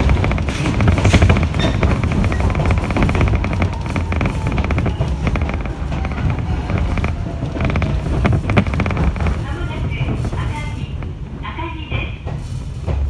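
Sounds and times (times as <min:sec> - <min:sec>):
train low rumble: 0:00.0 - 0:13.0
wheels clattering over rails: 0:00.0 - 0:13.0.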